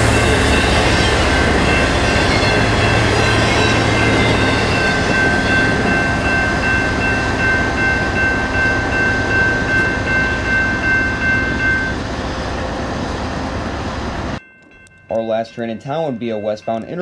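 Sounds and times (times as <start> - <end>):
freight train rumbling on rails: 0.0 - 14.4
high steady ringing tone: 0.0 - 17.0.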